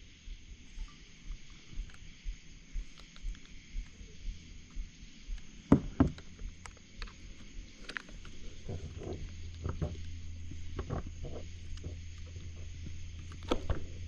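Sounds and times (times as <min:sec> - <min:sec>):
faint low thump: 0:00.3 - 0:06.6.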